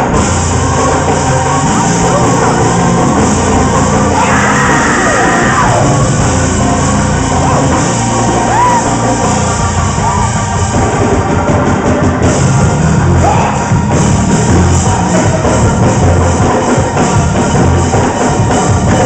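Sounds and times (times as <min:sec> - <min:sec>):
gospel band music: 0:00.0 - 0:19.0
congregation shouting and whooping: 0:00.5 - 0:11.1.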